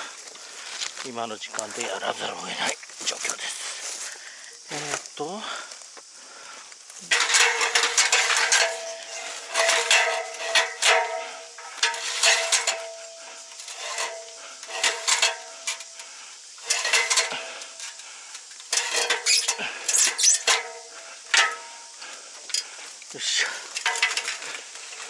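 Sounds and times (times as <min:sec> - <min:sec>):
metal equipment clattering: 0:07.0 - 0:16.0, 0:16.6 - 0:18.0, 0:18.7 - 0:21.8, 0:23.7 - 0:25.0.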